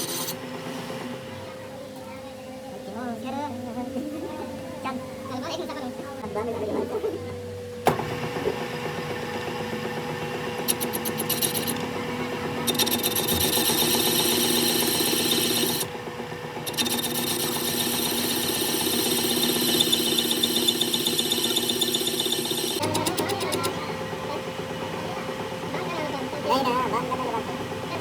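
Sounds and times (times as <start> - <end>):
power tool motor hum: 0.0 - 1.0, 7.8 - 25.9
tool rasping on metal: 10.6 - 11.9, 12.6 - 15.9, 16.6 - 23.7.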